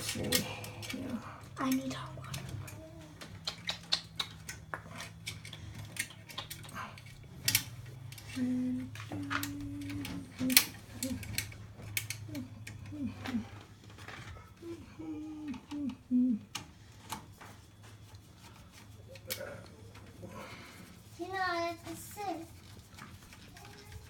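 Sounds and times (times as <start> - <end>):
tools clicking and tapping: 0.0 - 14.2
steady low hum: 0.0 - 24.0.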